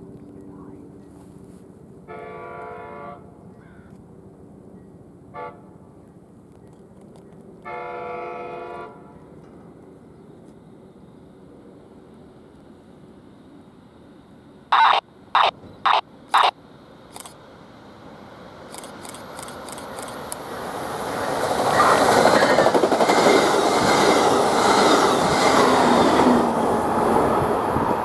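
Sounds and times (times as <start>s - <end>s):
train passing close by: 0.0s - 28.0s
loud horn blasts: 2.1s - 3.3s, 7.7s - 9.0s.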